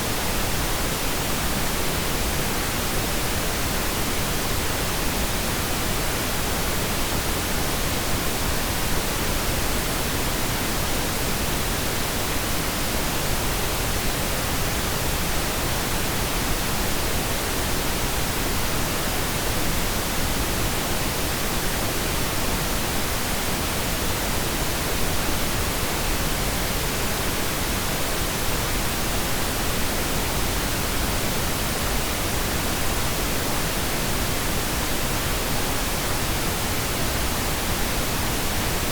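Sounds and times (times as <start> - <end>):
steady pink noise hiss: 0.0 - 38.9.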